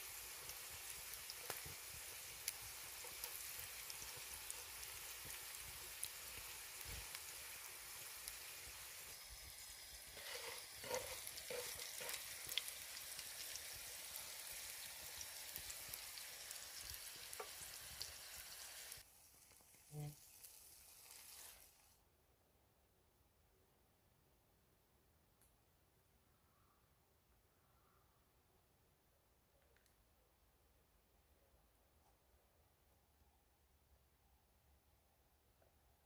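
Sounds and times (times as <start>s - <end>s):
food sizzling in a pan: 0.0s - 22.0s
utensil clattering and scraping: 10.1s - 12.3s.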